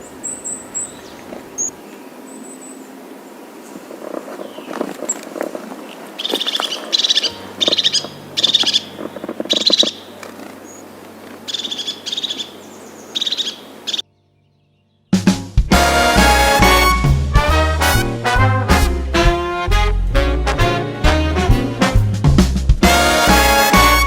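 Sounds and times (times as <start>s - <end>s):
bird pulsed high calls: 0.0s - 2.9s, 5.8s - 15.2s.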